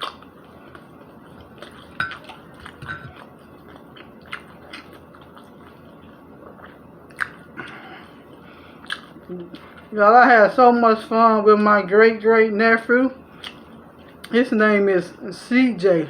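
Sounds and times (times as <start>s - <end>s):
person chewing food: 0.0s - 9.9s, 13.3s - 14.4s
mouth clicks and smacks: 6.6s - 7.4s, 8.8s - 9.8s.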